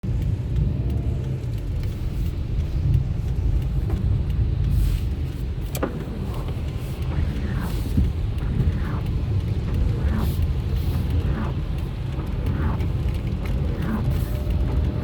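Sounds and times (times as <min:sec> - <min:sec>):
car rumbling on wet road: 0:00.0 - 0:15.0
sharp ticks: 0:00.1 - 0:15.0.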